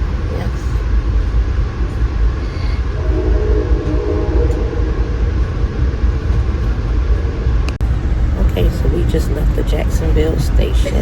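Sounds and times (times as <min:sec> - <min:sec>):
train rumble on board: 0:00.0 - 0:11.0
train horn chord: 0:02.9 - 0:07.5.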